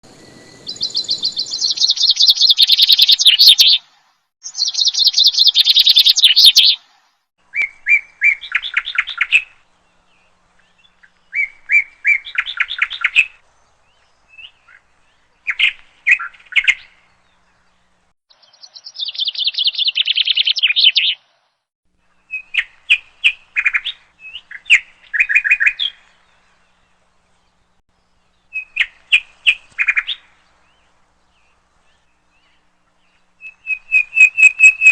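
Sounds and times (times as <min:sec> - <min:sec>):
songbird trilling: 0:00.2 - 0:03.8, 0:04.4 - 0:06.8, 0:18.3 - 0:21.2, 0:32.0 - 0:34.9.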